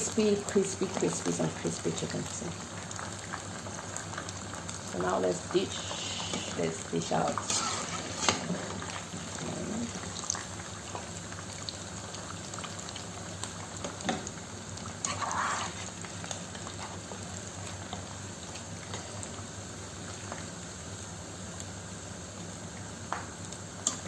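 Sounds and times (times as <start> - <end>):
oil bubbling and sizzling: 0.0 - 24.0
scrape: 7.4 - 8.6, 15.1 - 15.9.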